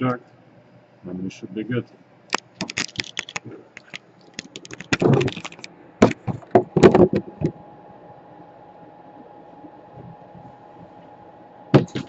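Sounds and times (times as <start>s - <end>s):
faint steady hum: 0.0s - 12.0s
tools clicking and tapping: 2.3s - 6.9s.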